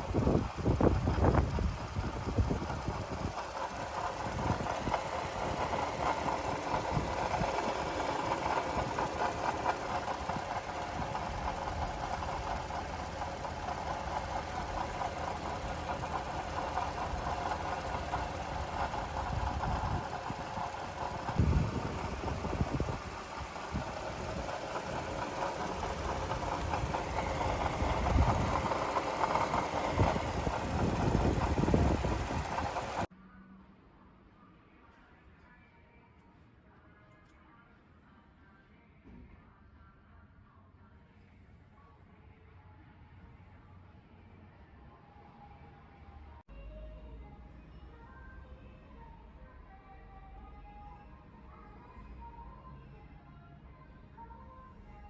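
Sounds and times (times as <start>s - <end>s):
abnormal mechanical noise: 0.0s - 33.1s
car engine idling: 0.0s - 33.1s.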